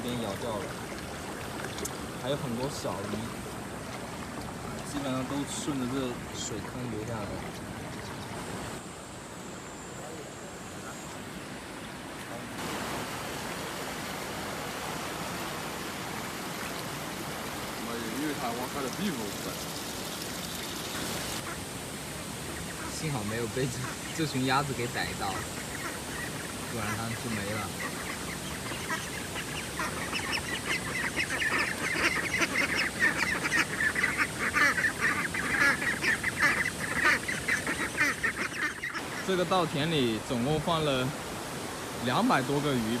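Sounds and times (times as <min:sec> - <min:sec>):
water rushing down a ditch: 0:00.0 - 0:08.8, 0:11.7 - 0:43.0
ducks quacking: 0:17.7 - 0:21.7, 0:22.5 - 0:40.2.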